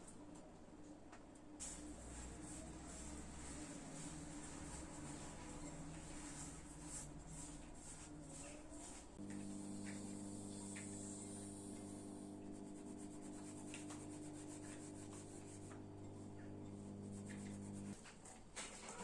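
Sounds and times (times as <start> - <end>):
low electric hum: 0.0 - 18.0
light rubbing strokes: 1.6 - 18.0.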